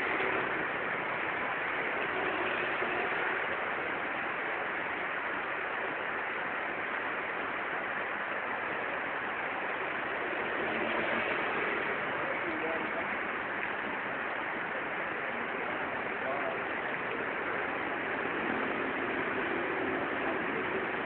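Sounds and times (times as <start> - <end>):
rain on a wet street: 0.0 - 21.0.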